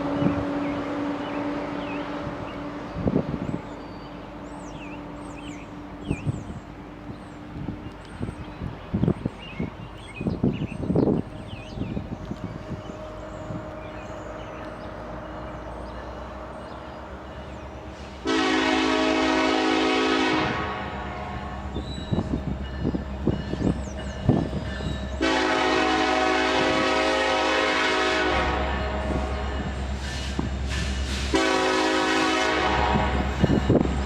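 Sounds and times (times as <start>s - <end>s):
locomotive air horn: 18.2s - 21.7s, 25.2s - 29.6s, 31.0s - 33.4s.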